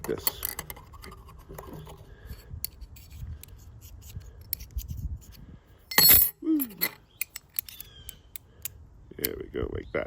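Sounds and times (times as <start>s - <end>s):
small metal clicks: 2.6s - 9.4s.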